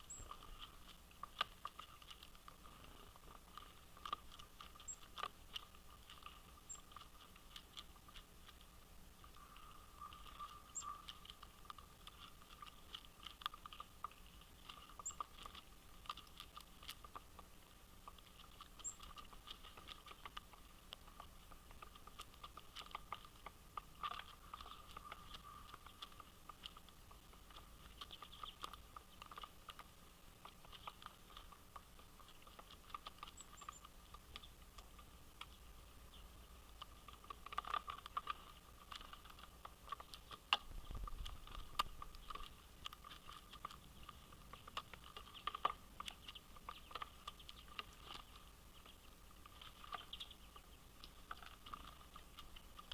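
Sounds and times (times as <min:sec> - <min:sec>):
high bird chirps: 0:00.0 - 0:00.4, 0:09.4 - 0:11.1
birds pecking at seed: 0:00.0 - 0:52.9.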